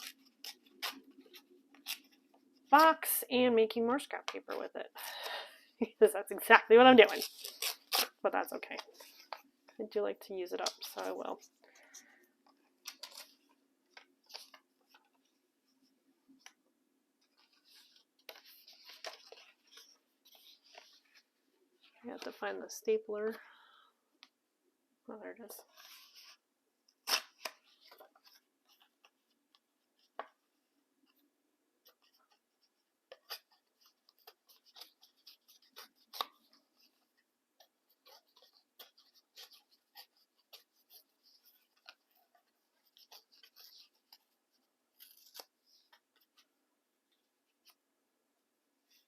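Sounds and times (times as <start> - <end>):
paper rustling and crinkling: 0.0 - 2.6, 10.6 - 15.4, 17.2 - 22.4, 31.8 - 46.5.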